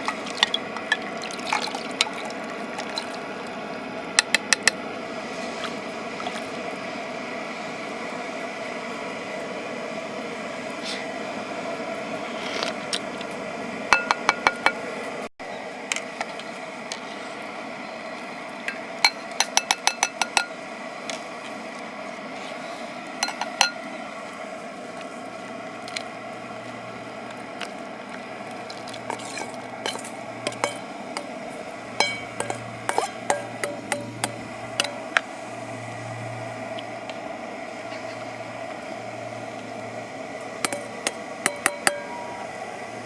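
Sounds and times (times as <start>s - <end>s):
metal utensil clinking on pot: 23.2s - 23.8s, 28.8s - 31.4s, 32.0s - 35.1s, 40.7s - 42.2s.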